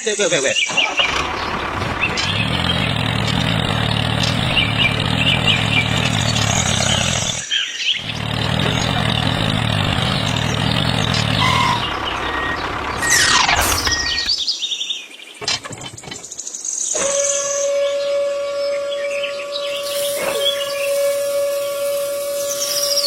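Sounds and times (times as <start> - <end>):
engine running: 0.7 - 14.4, 15.4 - 16.4, 19.6 - 23.0.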